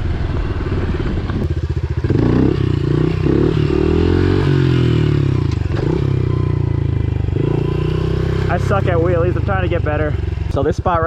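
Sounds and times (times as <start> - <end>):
small motorbike engine revving: 1.7 - 10.6.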